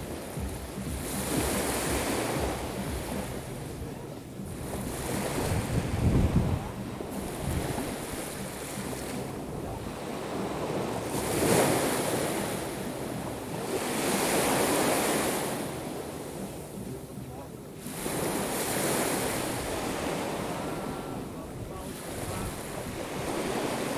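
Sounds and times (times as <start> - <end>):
wind buffeting microphone: 0.0 - 16.9, 19.4 - 23.9
waves breaking on shore: 0.0 - 23.9.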